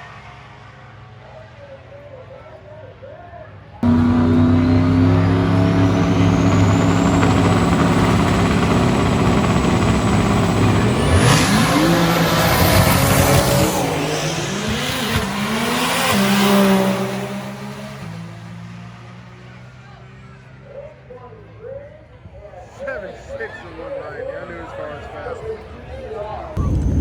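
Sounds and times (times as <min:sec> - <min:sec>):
high-performance car engine whining: 0:03.8 - 0:20.8, 0:26.2 - 0:27.0.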